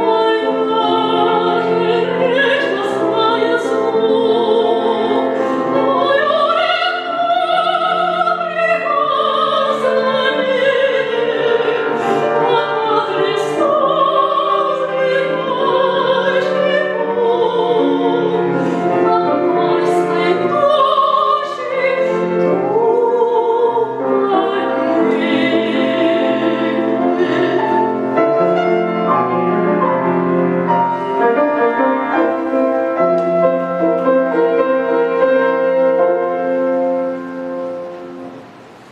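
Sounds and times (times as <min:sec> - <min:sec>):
soprano singing operatically: 0:00.0 - 0:28.9
grand piano: 0:00.0 - 0:38.9.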